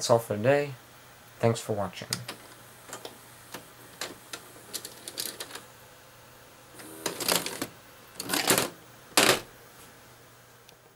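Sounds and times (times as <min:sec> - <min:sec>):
rustling clattering bursts: 0:06.8 - 0:09.5.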